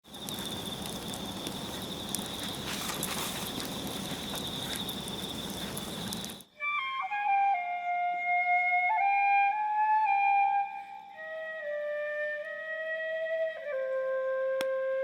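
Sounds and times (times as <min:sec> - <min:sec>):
crickets trilling: 0:00.0 - 0:06.5.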